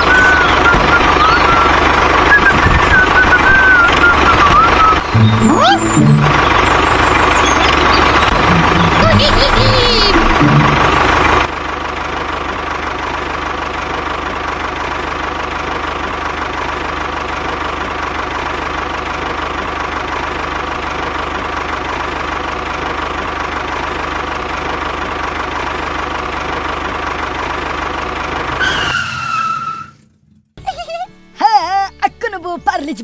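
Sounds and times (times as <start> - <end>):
tractor engine drone: 0.0 - 33.0
faint high tone: 5.1 - 6.6.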